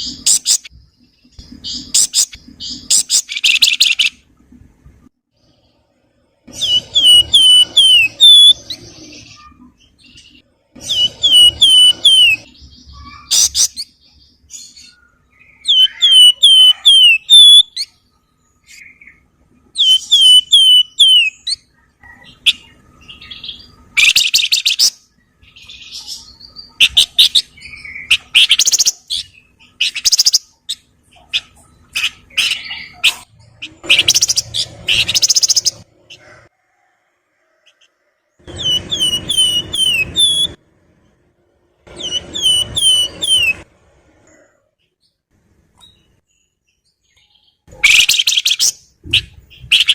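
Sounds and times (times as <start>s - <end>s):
bird harsh chattering: 0.0s - 0.7s, 1.6s - 4.2s, 26.8s - 36.3s, 47.7s - 49.9s
bird singing whistled phrases: 6.6s - 9.6s, 10.9s - 13.6s, 14.9s - 17.9s, 19.8s - 21.6s, 38.6s - 40.6s.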